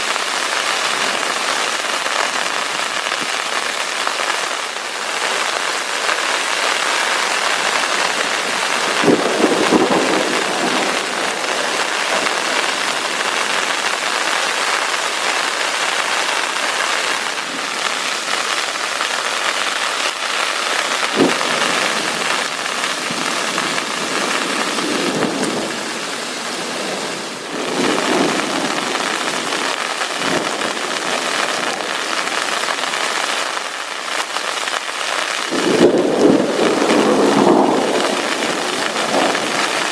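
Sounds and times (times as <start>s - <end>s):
heavy rain falling: 0.0s - 39.9s
thunder rumbling: 6.8s - 19.6s, 20.3s - 32.8s, 35.5s - 39.9s
sharp thunder crack: 8.0s - 13.8s, 21.0s - 31.9s, 35.5s - 39.9s.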